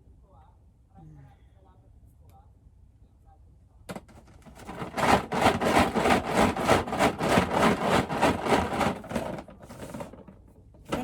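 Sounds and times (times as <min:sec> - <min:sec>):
plastic balls clattering in a box: 0:04.0 - 0:11.0.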